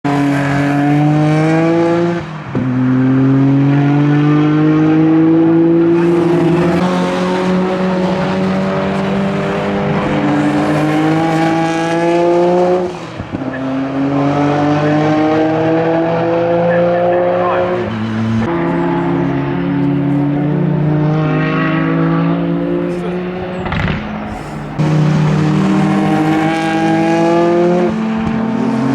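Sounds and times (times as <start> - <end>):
race car engine accelerating: 0.1 - 28.9.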